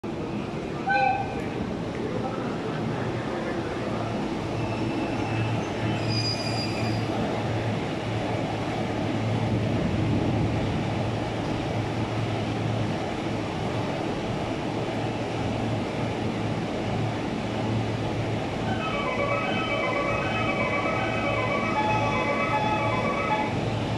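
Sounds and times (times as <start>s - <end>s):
train wheels on rail: 0.0s - 23.9s
faint high squeal: 4.6s - 7.1s
locomotive low hum: 6.7s - 23.9s.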